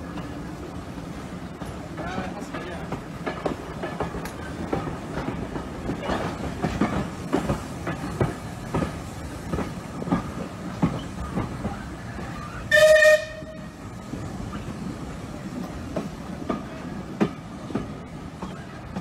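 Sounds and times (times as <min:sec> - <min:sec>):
steady train rumble: 0:00.0 - 0:19.0
wheels clacking over rail joints: 0:00.0 - 0:19.0
locomotive whistle blast: 0:12.7 - 0:13.6.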